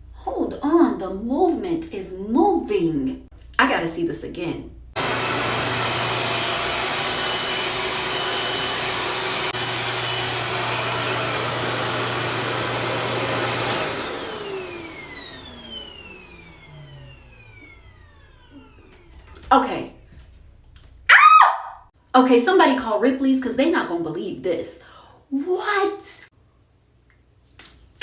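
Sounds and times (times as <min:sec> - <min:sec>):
motor whine spinning down: 0:05.0 - 0:19.4
hair dryer running: 0:05.0 - 0:19.5.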